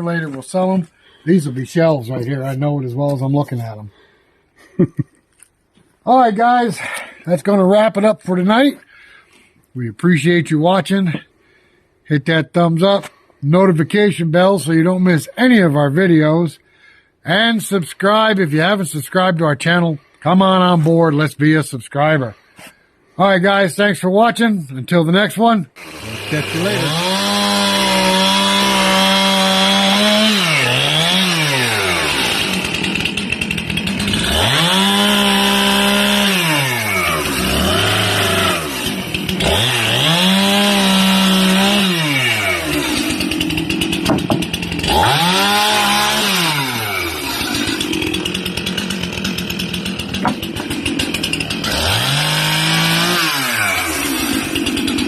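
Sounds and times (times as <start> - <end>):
chainsaw engine revving: 25.8 - 55.0.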